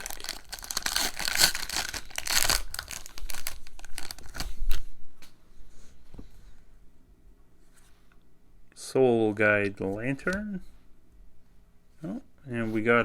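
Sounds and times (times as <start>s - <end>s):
plastic wrapper tearing and crinkling: 0.0s - 4.8s.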